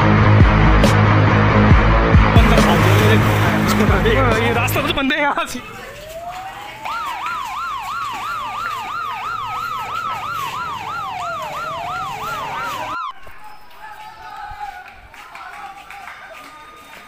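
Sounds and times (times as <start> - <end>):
police siren wailing: 2.4 - 14.6
fast siren warble: 6.2 - 14.0.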